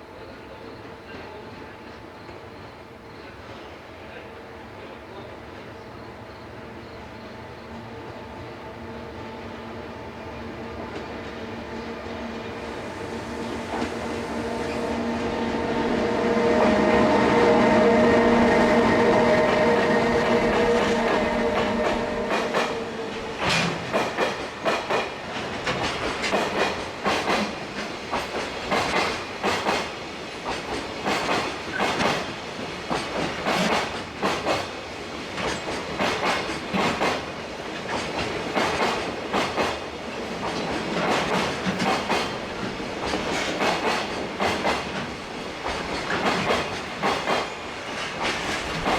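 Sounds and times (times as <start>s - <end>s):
electric locomotive hum: 6.4s - 26.1s
train wheels clacking over rail joints: 18.4s - 48.9s.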